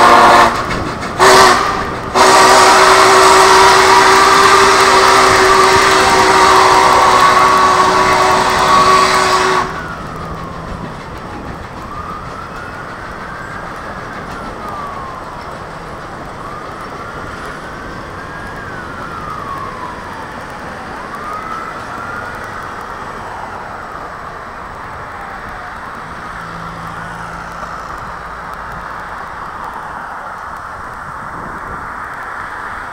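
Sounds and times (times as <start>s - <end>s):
steam whistle chord: 0.0s - 10.1s
road noise: 0.0s - 32.9s
steam locomotive passing: 0.0s - 32.9s
siren wailing: 1.2s - 30.7s.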